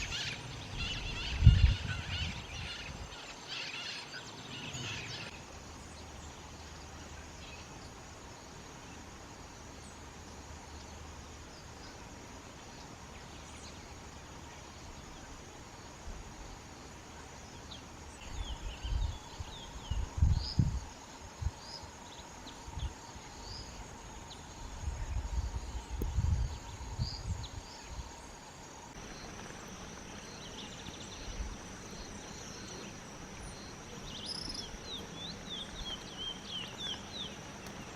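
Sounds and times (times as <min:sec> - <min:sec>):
insect drone: 0:00.0 - 0:37.9
wind thumps on microphone: 0:00.7 - 0:03.1, 0:24.9 - 0:27.6.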